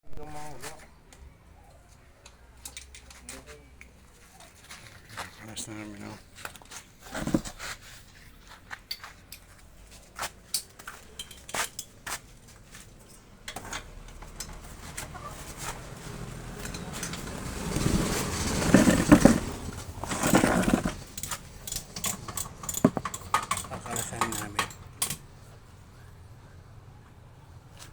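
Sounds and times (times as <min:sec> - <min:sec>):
metal tools clinking: 0:10.5 - 0:12.0, 0:16.6 - 0:25.3.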